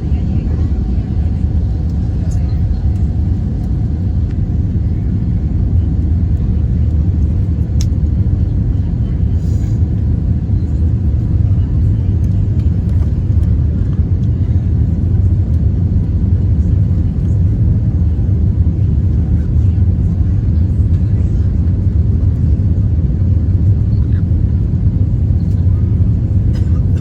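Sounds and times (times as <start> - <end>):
jet airliner cabin rumble: 0.0 - 27.0.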